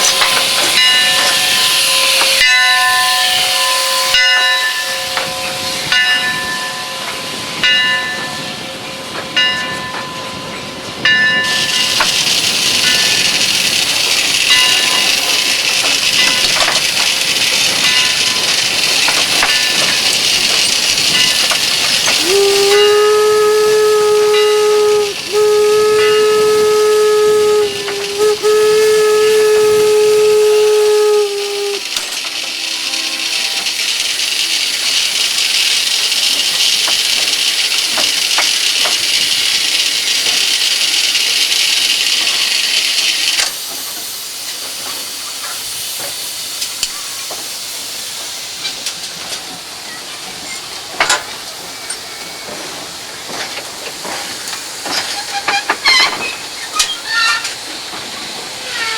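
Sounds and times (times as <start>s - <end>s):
steam locomotive whistle: 0.0s - 8.8s, 11.0s - 35.2s, 58.6s - 58.9s
loud hissing steam: 0.0s - 9.4s, 10.2s - 58.9s.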